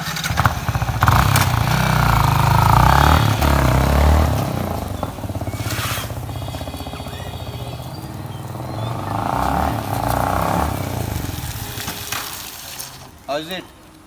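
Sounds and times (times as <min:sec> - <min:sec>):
motorcycle engine revving and idling: 0:00.0 - 0:13.2.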